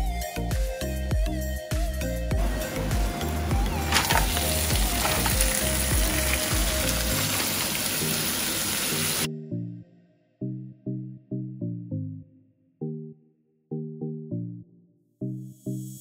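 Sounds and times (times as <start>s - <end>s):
background music: 0.0s - 16.0s
food sizzling in hot oil: 3.0s - 9.3s.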